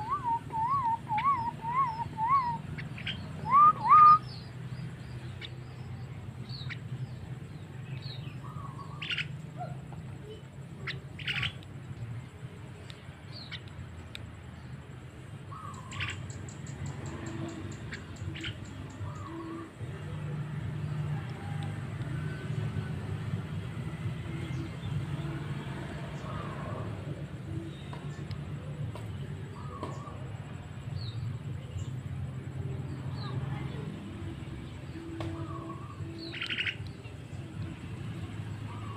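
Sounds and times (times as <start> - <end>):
bird whistles and squawks: 0.0 - 4.5, 10.8 - 11.6.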